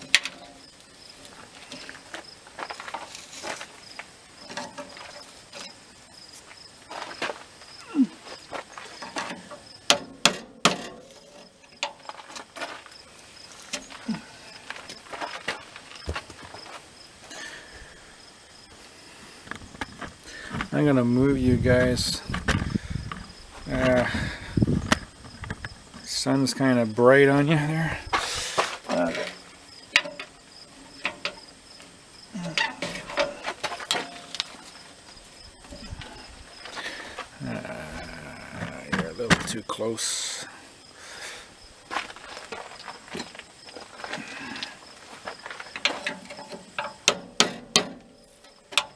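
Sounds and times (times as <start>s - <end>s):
cricket chirping: 0.0s - 48.9s.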